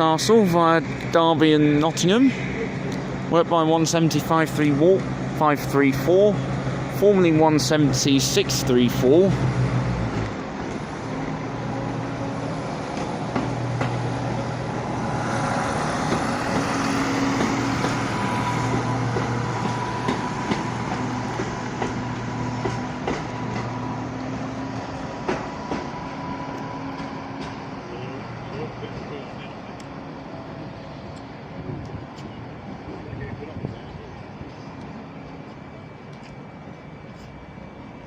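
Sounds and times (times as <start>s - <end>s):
diesel train engines droning: 0.0s - 38.0s
train wheels clicking over rail joints: 9.5s - 11.1s, 12.8s - 24.0s, 24.9s - 27.8s.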